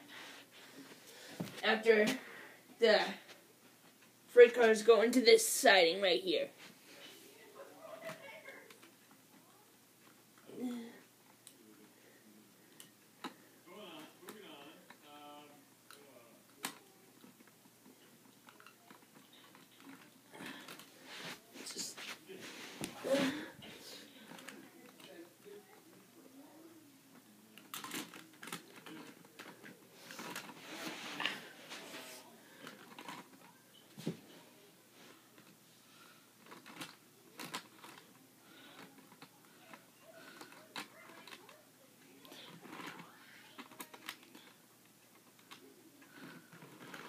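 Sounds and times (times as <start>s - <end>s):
plastic toy clicks and rustles: 27.6s - 30.6s, 32.6s - 33.5s, 36.4s - 41.6s, 42.2s - 47.0s.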